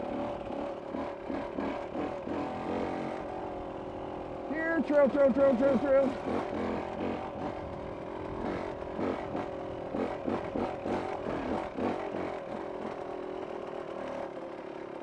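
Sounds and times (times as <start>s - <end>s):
vehicle engine revving off-road: 0.0s - 15.0s.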